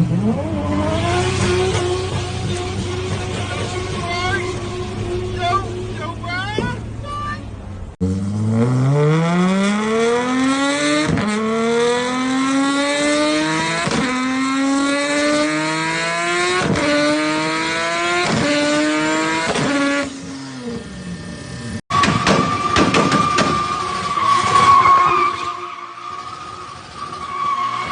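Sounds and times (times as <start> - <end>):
car engine accelerating through gears: 0.0 - 6.0, 8.0 - 21.8.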